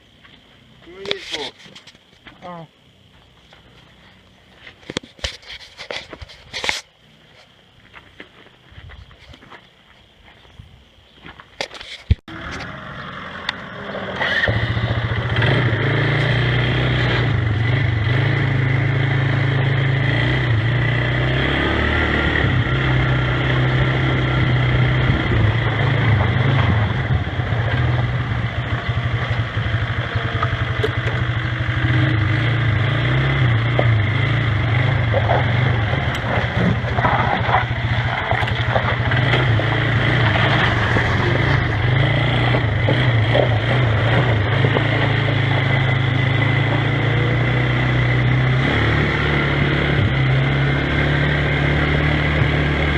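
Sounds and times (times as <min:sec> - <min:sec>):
loader engine starting and running: 0:12.3 - 0:52.9.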